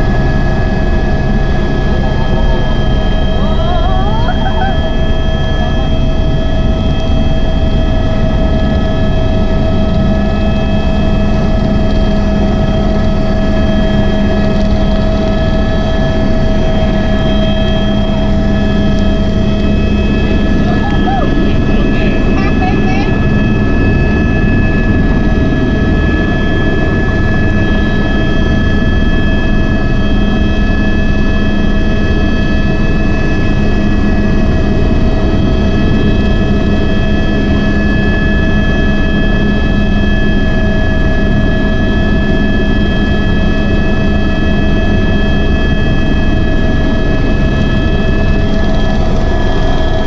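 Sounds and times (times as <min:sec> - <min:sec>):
helicopter drone: 0:00.0 - 0:50.0
high whines: 0:12.8 - 0:27.1.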